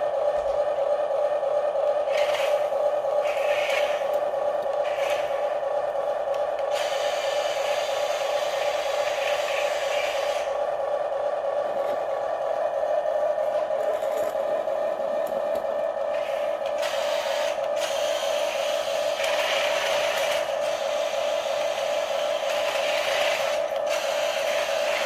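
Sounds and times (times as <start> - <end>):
toy motors whirring high whine: 2.1 - 4.2, 4.8 - 5.5, 16.1 - 25.0.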